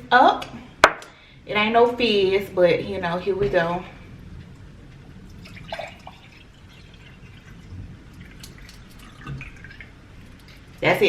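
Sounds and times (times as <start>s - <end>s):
liquid gurgle: 3.5s - 11.0s
drink trickling into a glass: 5.3s - 10.8s.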